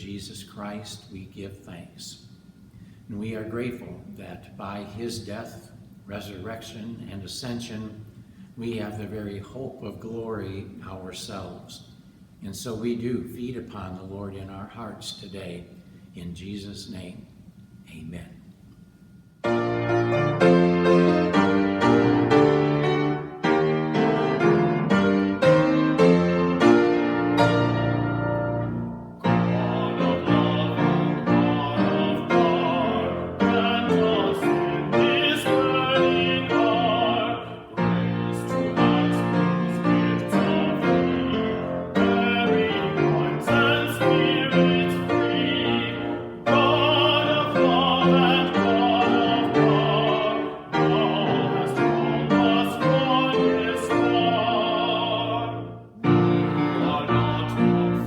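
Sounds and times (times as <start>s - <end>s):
person singing with vibrato: 19.4s - 58.0s
piano accompaniment: 19.4s - 58.0s.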